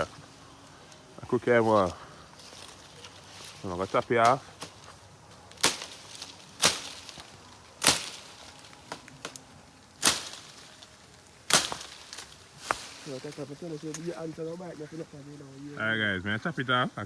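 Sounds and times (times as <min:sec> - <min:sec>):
blade chopping tree branch: 0:05.5 - 0:09.4, 0:10.0 - 0:10.7, 0:11.4 - 0:13.0.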